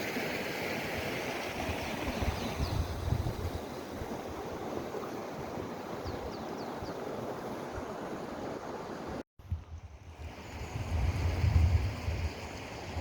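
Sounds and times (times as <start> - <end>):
stream rushing: 0.0 - 9.2.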